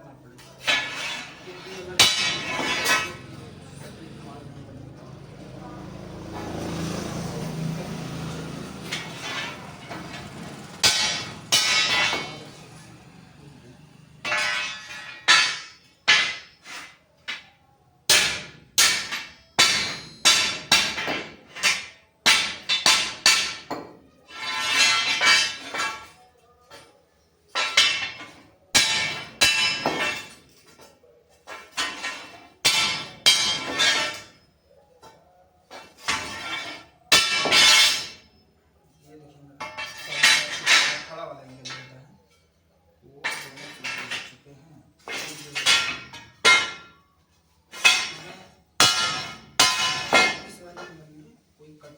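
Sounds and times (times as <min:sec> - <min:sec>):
hammer striking steel: 0:00.6 - 0:03.5, 0:08.6 - 0:12.7, 0:14.2 - 0:17.5, 0:18.1 - 0:26.2, 0:27.5 - 0:30.6, 0:31.5 - 0:34.4, 0:35.7 - 0:38.3, 0:45.1 - 0:47.0, 0:47.7 - 0:50.9.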